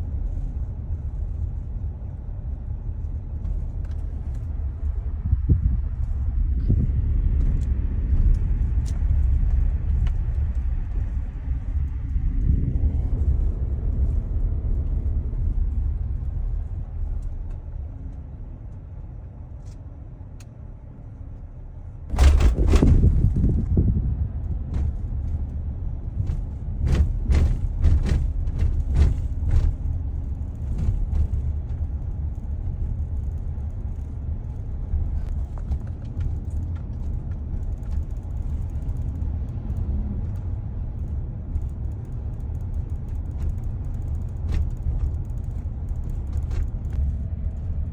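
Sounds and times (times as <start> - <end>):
car road rumble: 0.0 - 47.9
loud jolt: 22.1 - 23.4.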